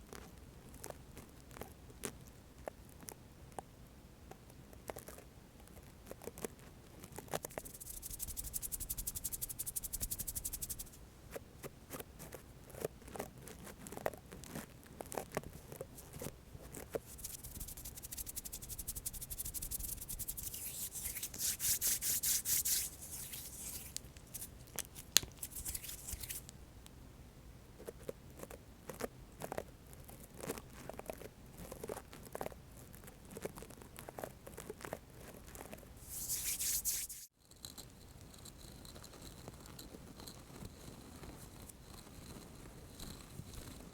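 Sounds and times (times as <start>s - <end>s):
hands rubbing together: 7.4s - 11.0s, 16.9s - 26.5s, 36.0s - 37.3s.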